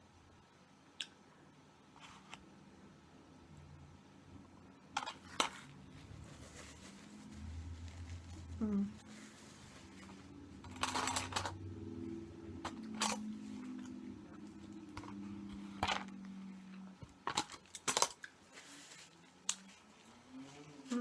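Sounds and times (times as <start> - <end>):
faint low hum: 0.0 - 21.0
plastic food packaging crinkling: 17.0 - 20.0.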